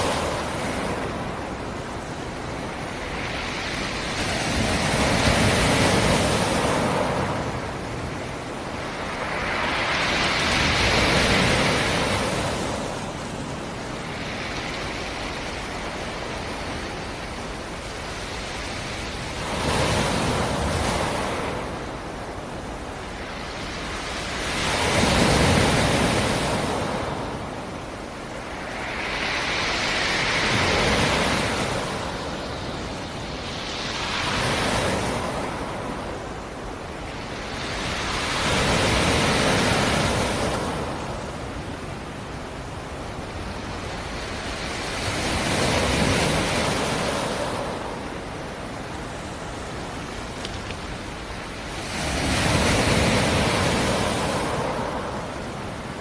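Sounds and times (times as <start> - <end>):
constant sea wash: 0.0 - 56.0
waves breaking on shore: 0.0 - 56.0.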